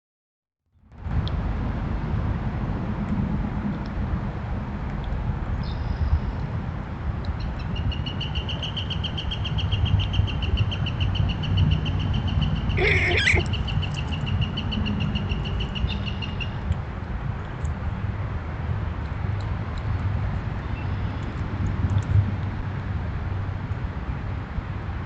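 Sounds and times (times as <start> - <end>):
bird high trill: 12.6 - 13.6.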